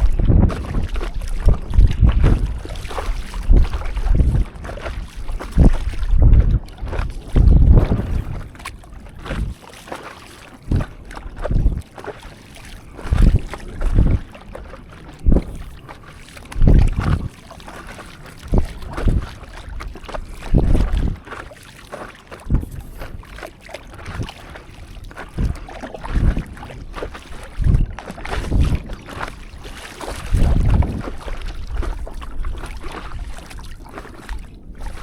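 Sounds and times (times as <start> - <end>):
wind on microphone: 0.0 - 9.7, 10.6 - 21.5, 22.4 - 35.0
paddle splashing in sea water: 0.0 - 35.0.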